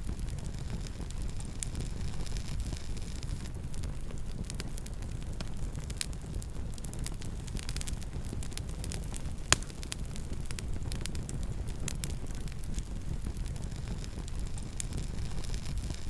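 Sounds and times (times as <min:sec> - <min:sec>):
wood fire crackling: 0:00.0 - 0:16.0
loud fire pop: 0:09.4 - 0:11.2.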